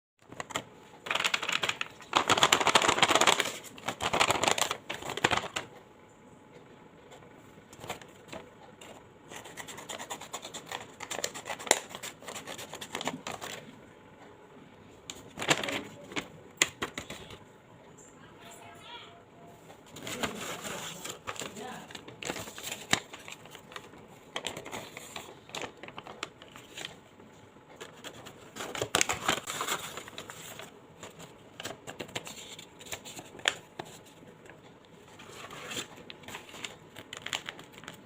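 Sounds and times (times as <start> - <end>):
plastic packaging crinkling: 0.2 - 5.8, 15.1 - 17.4, 19.9 - 27.0, 27.7 - 38.0.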